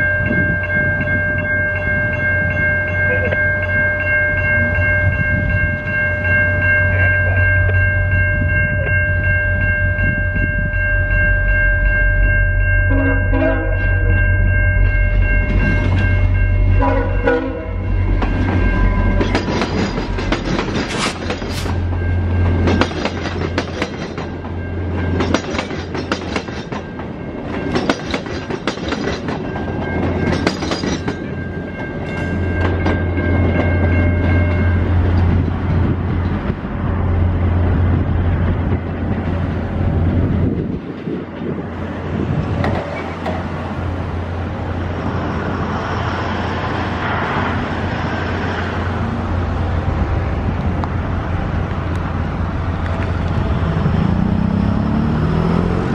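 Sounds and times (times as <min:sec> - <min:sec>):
locomotive engine rumble: 0:02.9 - 0:55.9
train horn: 0:12.8 - 0:14.1, 0:16.7 - 0:18.0
train wheels clattering over rails: 0:18.1 - 0:33.9.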